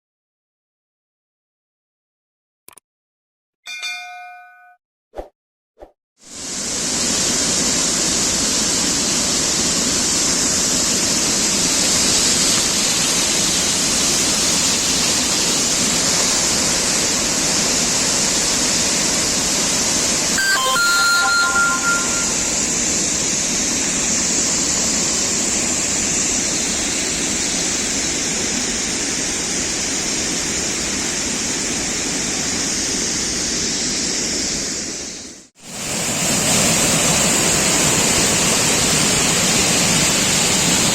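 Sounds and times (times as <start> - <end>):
high whistle-like call: 20.4 - 23.0.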